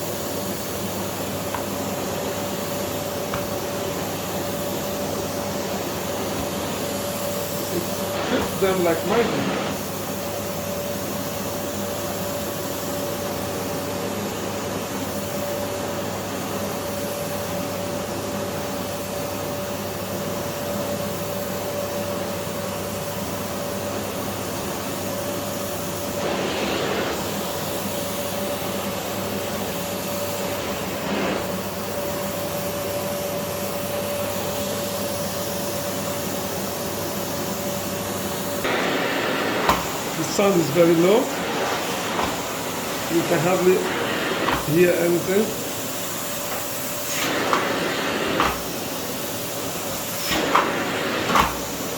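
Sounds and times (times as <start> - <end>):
vacuum cleaner running: 0.0 - 51.9
vacuum swishes: 38.7 - 44.8.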